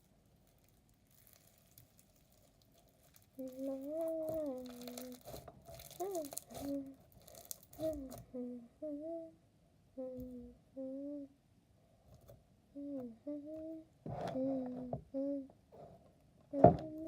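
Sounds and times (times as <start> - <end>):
crunchy slime crackling: 0.0 - 8.2
girl humming a tune: 3.4 - 5.2, 6.0 - 7.0, 7.8 - 11.4, 12.7 - 15.5, 16.5 - 17.0.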